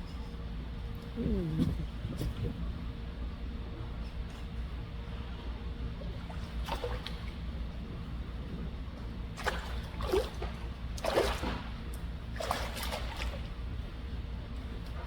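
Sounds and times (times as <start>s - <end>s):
seawater splashing and lapping: 6.0s - 14.1s.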